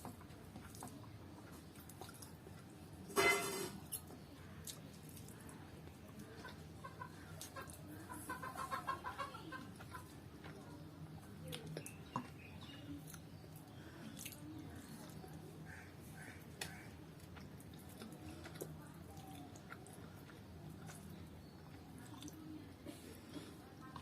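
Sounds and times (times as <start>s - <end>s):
eating clicks and smacks: 0.0s - 2.8s, 3.9s - 6.6s, 11.2s - 15.4s, 16.2s - 22.5s
chickens clucking: 6.1s - 10.9s.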